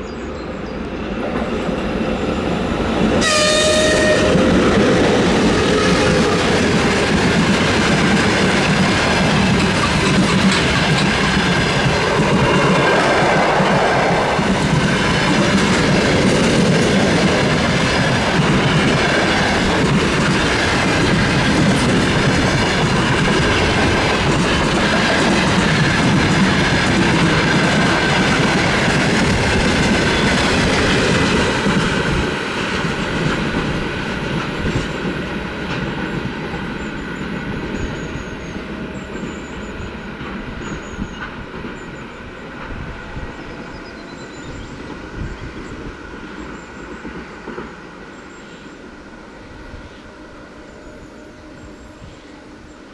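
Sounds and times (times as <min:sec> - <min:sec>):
train wheels clattering over rails: 0:01.2 - 0:48.5.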